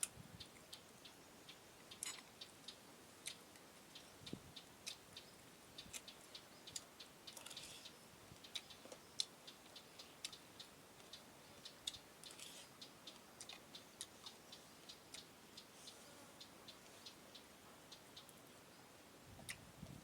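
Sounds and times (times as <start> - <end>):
mouth chewing clicks and smacks: 3.2 - 3.6, 4.8 - 5.0, 5.8 - 10.4, 11.0 - 14.4.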